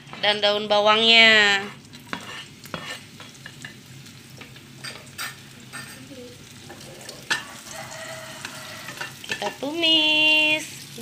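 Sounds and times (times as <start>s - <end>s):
aromatics sizzling in oil: 0.0s - 11.0s
utensil scraping a wok: 1.3s - 3.8s, 4.8s - 11.0s.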